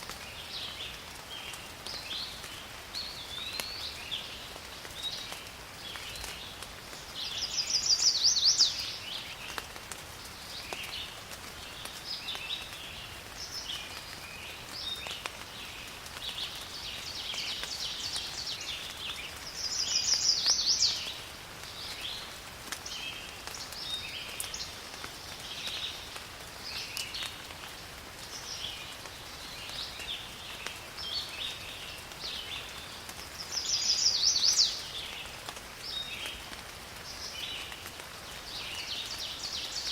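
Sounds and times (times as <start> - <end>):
rain falling in a forest: 0.0 - 39.9
birds calling: 16.2 - 21.2.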